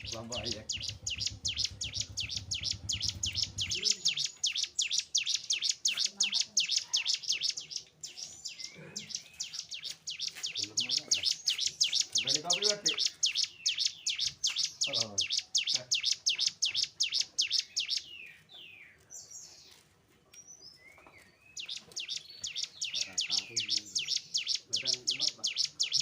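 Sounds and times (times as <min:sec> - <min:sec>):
soft sweeping bird notes: 0:00.0 - 0:18.2
bird chirping high notes: 0:00.0 - 0:18.4.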